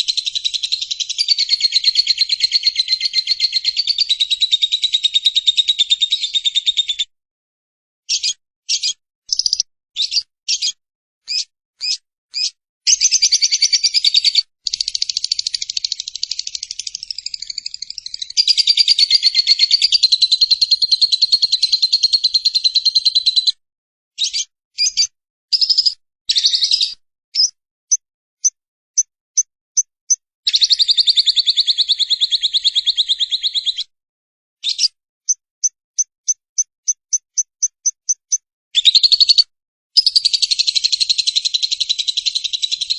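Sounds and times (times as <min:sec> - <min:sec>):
lovebird chirps: 0:00.0 - 0:07.0, 0:08.1 - 0:23.5, 0:24.2 - 0:27.6, 0:28.4 - 0:33.9, 0:34.6 - 0:35.4, 0:36.0 - 0:39.4, 0:40.0 - 0:42.9
lovebird trilling: 0:08.1 - 0:20.9.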